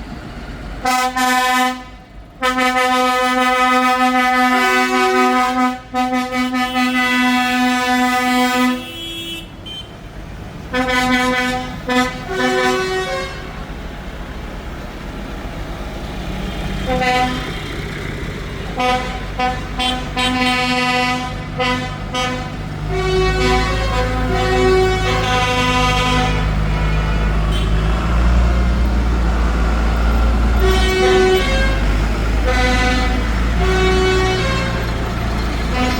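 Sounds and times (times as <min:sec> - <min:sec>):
diesel engines rumbling: 0:00.0 - 0:35.9
vehicle horns tooting: 0:00.8 - 0:10.1, 0:10.7 - 0:13.6, 0:16.8 - 0:17.7, 0:18.7 - 0:28.9, 0:30.6 - 0:35.9.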